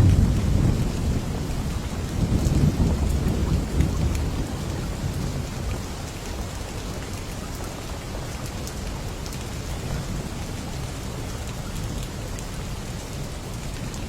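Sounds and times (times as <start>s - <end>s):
low thunder rumble: 0.0s - 5.7s
steady rain falling: 0.0s - 14.0s
raindrop ticks: 7.0s - 14.0s.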